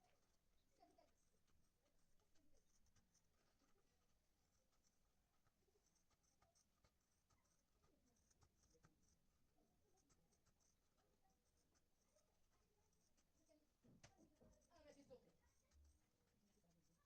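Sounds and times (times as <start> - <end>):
light scratching: 0.0 - 17.0.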